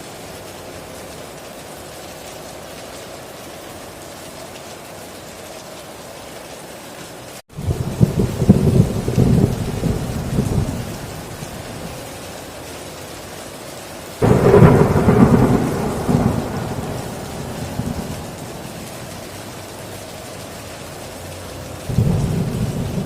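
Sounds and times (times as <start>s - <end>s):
heavy rain on a tin roof: 0.0s - 23.0s
sharp thunder crack: 7.6s - 11.4s, 14.2s - 19.2s
thunder rumbling: 7.6s - 12.1s, 14.2s - 19.8s, 21.7s - 23.0s.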